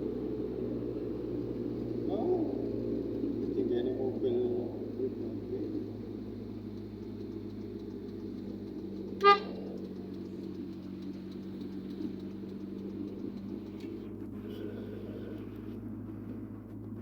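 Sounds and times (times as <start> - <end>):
vehicle humming: 0.0 - 17.0
vehicle horn toot: 9.2 - 9.6.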